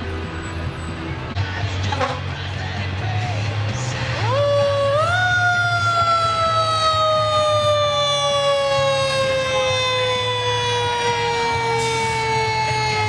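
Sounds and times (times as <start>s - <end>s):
truck engine low rumble: 0.0s - 13.0s
fire truck siren winding down: 4.1s - 13.0s.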